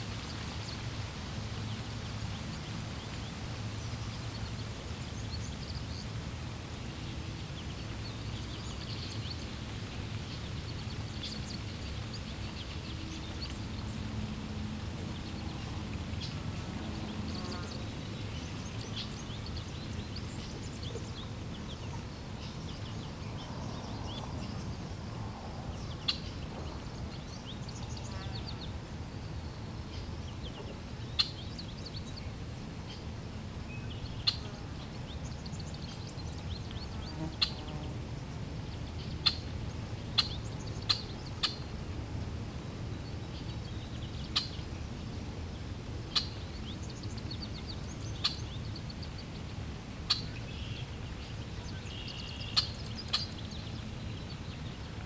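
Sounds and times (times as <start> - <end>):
flowing water: 0.0 - 28.0.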